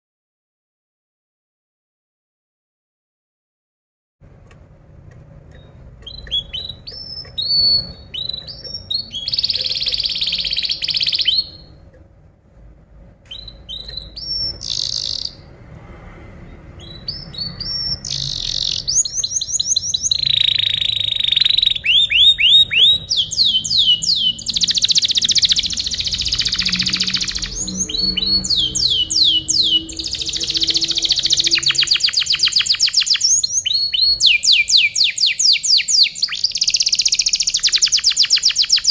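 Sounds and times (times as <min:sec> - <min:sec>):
canary singing: 0:05.5 - 0:11.9, 0:13.3 - 0:15.6, 0:16.4 - 0:38.9.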